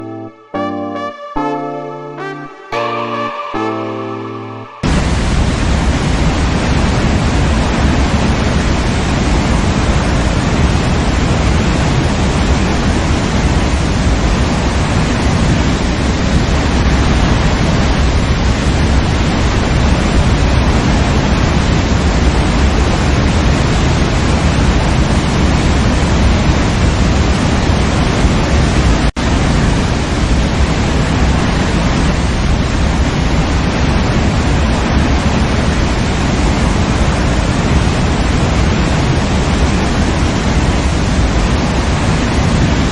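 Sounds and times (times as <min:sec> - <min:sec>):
waterfall rushing: 0:02.8 - 0:09.6.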